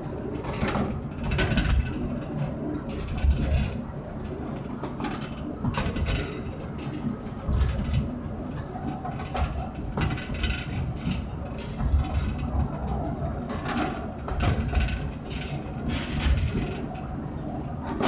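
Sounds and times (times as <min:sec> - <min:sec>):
train rumbling: 0:00.0 - 0:18.0
wheels clacking on rails: 0:00.0 - 0:18.0.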